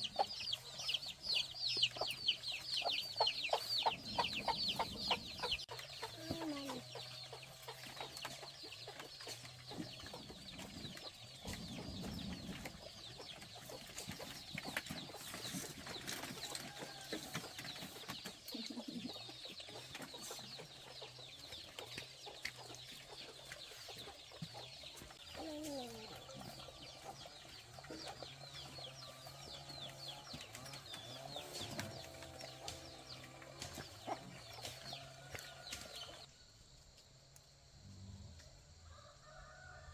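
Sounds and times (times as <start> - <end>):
chickens clucking and cheeping: 0.0 - 39.9.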